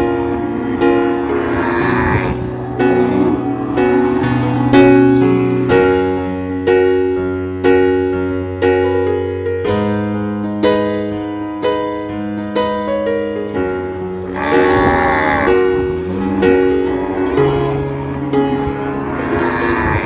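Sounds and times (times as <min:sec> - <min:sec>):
cow mooing: 0:00.0 - 0:06.2, 0:14.0 - 0:20.0
piano music: 0:00.0 - 0:20.0.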